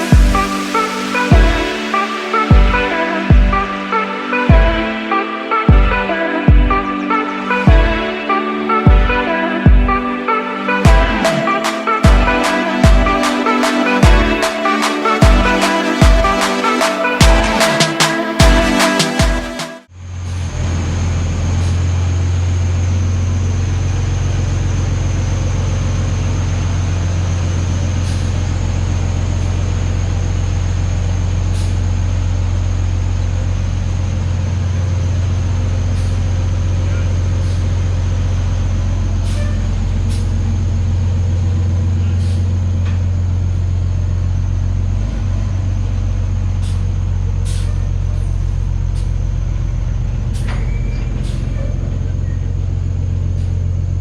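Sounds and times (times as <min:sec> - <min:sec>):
truck engine idling: 0:14.0 - 0:54.0.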